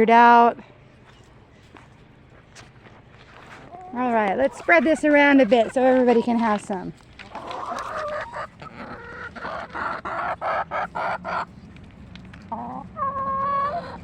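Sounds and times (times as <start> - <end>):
hens clucking: 3.5 - 14.0.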